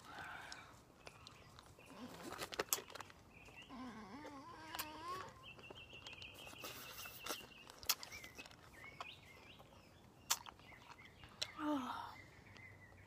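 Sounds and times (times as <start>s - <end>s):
faint bird chirps: 3.3s - 13.0s.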